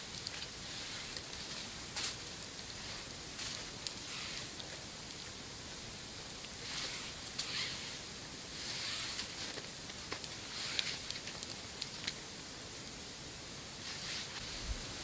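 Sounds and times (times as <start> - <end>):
steady hiss: 14.3 - 15.0.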